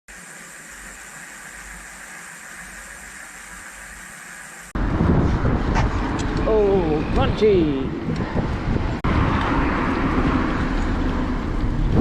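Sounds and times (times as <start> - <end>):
steady hiss: 0.1 - 4.8
low rumbling street sound: 4.7 - 12.0.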